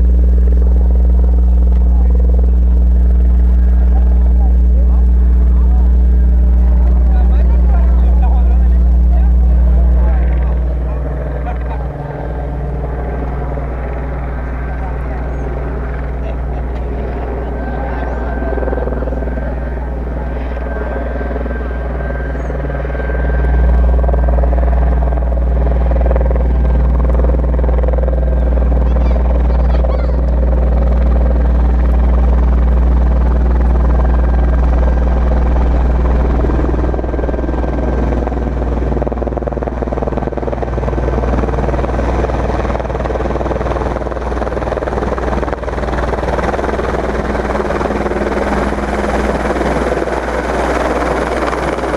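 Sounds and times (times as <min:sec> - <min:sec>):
helicopter rotors throbbing: 0:00.0 - 0:51.9.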